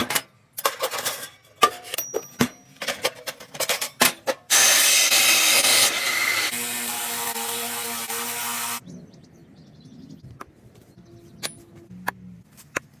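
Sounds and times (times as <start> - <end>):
power tool humming: 4.5 - 8.8.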